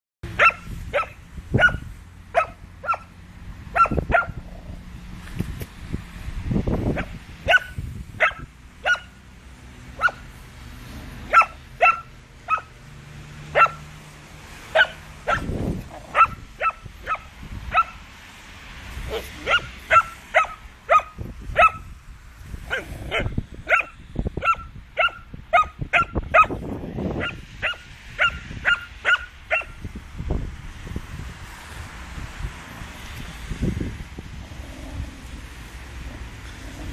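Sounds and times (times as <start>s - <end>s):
puppy barking and yipping: 0.3s - 4.5s, 6.9s - 9.2s, 10.0s - 10.3s, 11.3s - 12.8s, 13.5s - 13.9s, 14.7s - 18.0s, 19.1s - 21.9s, 22.7s - 26.6s, 27.2s - 29.8s
puppy low rumbles: 34.3s - 36.9s.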